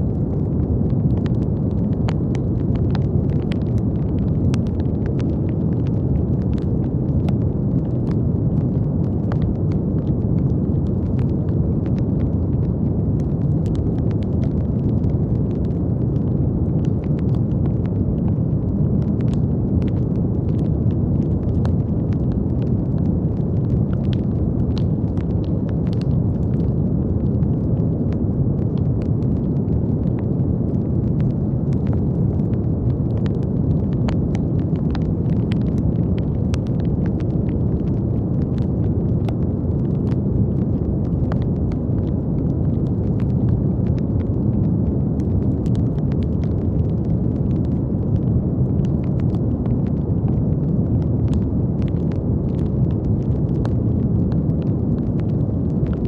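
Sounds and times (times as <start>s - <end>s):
brown noise: 0.0s - 56.0s
faint crackling clicks: 0.1s - 50.4s.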